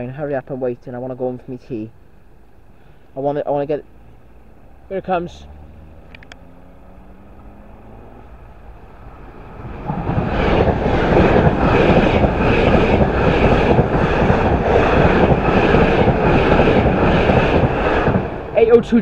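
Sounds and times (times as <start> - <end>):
passenger train passing: 4.9 - 19.0.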